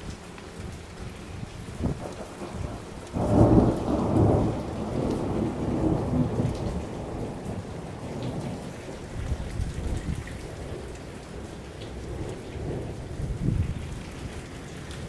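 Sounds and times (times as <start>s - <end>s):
steady rain: 0.0s - 15.0s
thunder clap rumbling: 1.8s - 10.8s.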